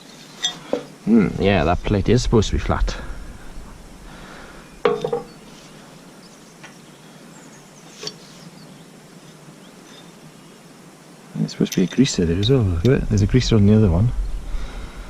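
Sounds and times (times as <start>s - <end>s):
metal parts clinking: 11.6s - 12.5s.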